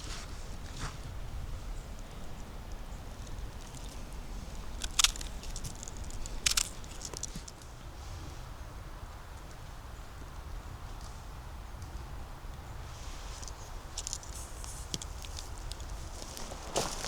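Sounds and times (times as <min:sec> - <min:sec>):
twigs crackling underfoot: 0:00.0 - 0:07.7, 0:12.9 - 0:17.0
footsteps on forest floor: 0:13.3 - 0:17.0.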